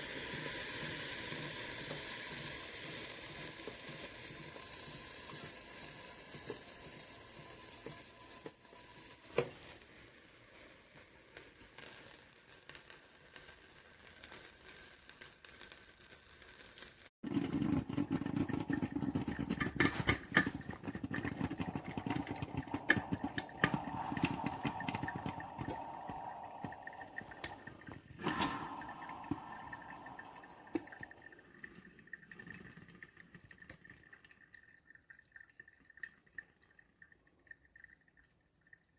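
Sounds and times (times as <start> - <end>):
coffee maker hissing: 0.0 - 10.2, 17.4 - 31.5.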